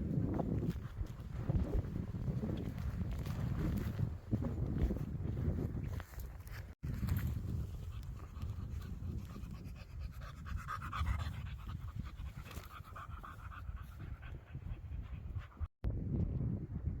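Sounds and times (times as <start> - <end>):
wind rumbling on microphone: 0.0 - 17.0
dog panting: 7.5 - 15.7.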